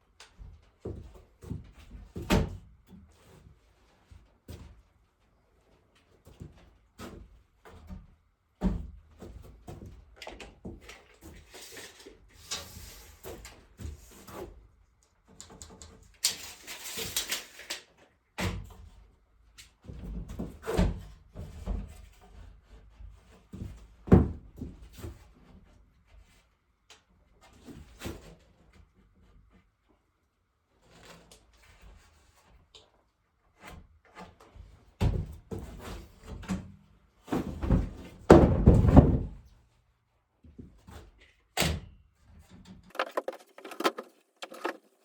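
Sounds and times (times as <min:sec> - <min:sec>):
wooden knocks and clunks: 0:37.4 - 0:39.4, 0:42.9 - 0:44.9
scraping and rustling: 0:42.9 - 0:45.0.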